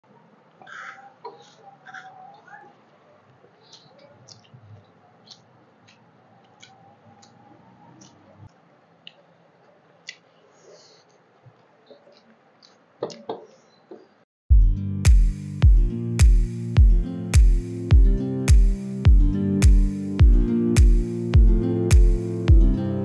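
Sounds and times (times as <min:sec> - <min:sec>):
wet chewing mouth clicks: 0:03.6 - 0:08.2
electronic music with heavy beat: 0:14.5 - 0:23.0.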